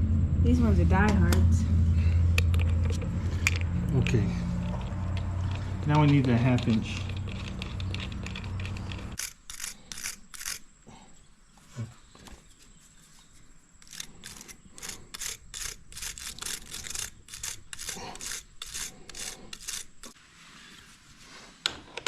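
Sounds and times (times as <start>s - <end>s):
hand tool rasping strokes: 4.0s - 10.8s, 13.8s - 20.2s.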